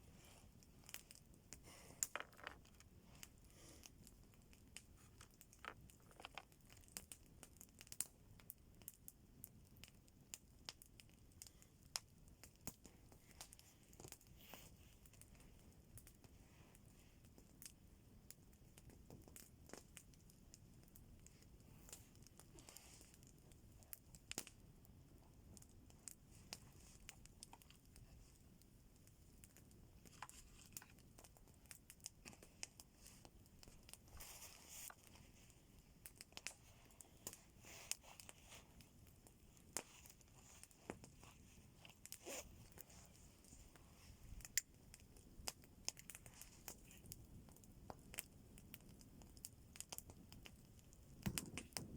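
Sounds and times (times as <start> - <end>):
campfire crackling: 0.0 - 51.9
rustles: 25.6 - 48.0.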